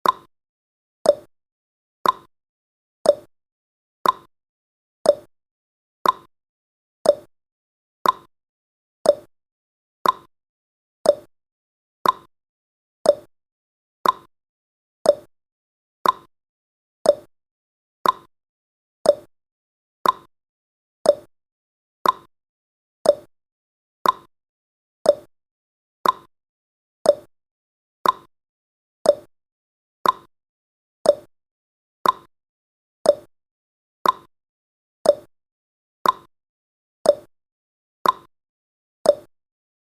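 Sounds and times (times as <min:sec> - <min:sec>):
clock ticks: 0:00.0 - 0:00.3, 0:01.1 - 0:01.3, 0:02.0 - 0:02.3, 0:03.1 - 0:03.3, 0:04.0 - 0:04.3, 0:05.1 - 0:05.3, 0:06.0 - 0:06.3, 0:07.1 - 0:07.3, 0:08.0 - 0:08.3, 0:09.1 - 0:09.3, 0:10.0 - 0:10.3, 0:11.1 - 0:11.3, 0:12.0 - 0:12.3, 0:13.1 - 0:13.3, 0:14.0 - 0:14.3, 0:15.1 - 0:15.3, 0:16.0 - 0:16.3, 0:17.1 - 0:17.3, 0:18.0 - 0:18.3, 0:19.0 - 0:19.3, 0:20.0 - 0:20.3, 0:21.1 - 0:21.3, 0:22.0 - 0:22.3, 0:23.0 - 0:23.3, 0:24.0 - 0:24.3, 0:25.1 - 0:25.3, 0:26.0 - 0:26.3, 0:27.1 - 0:27.3, 0:28.0 - 0:28.3, 0:29.0 - 0:29.3, 0:30.0 - 0:30.3, 0:31.1 - 0:31.3, 0:32.0 - 0:32.3, 0:33.1 - 0:33.3, 0:34.0 - 0:34.3, 0:35.0 - 0:35.3, 0:36.0 - 0:36.3, 0:37.1 - 0:37.3, 0:38.0 - 0:38.3, 0:39.1 - 0:39.3.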